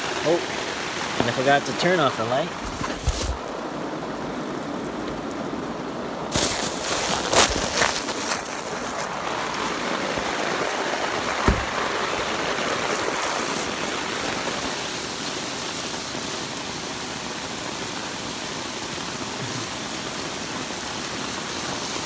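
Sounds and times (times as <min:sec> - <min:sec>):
heavy rain hiss: 0:00.0 - 0:22.0
single thump: 0:11.4 - 0:11.8.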